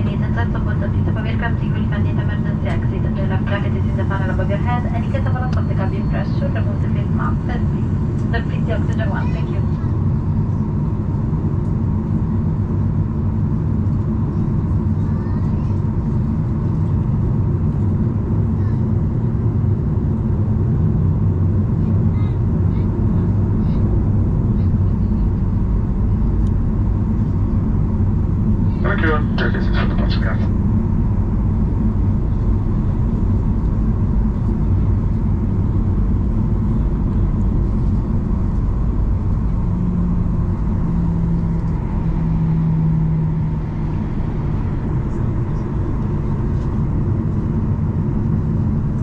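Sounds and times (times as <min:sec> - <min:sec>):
low hum: 0:00.0 - 0:15.2, 0:15.9 - 0:49.0
jet engine drone in cabin: 0:00.0 - 0:49.0
faint whining tone: 0:03.6 - 0:09.6.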